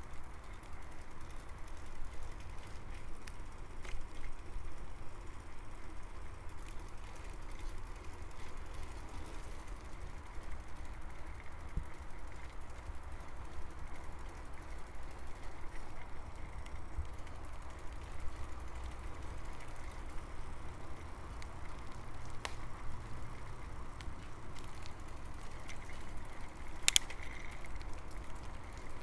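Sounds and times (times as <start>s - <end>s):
bicycle clicks and rattles: 0.0s - 29.0s
bicycle tyres rumbling on path: 0.0s - 29.0s.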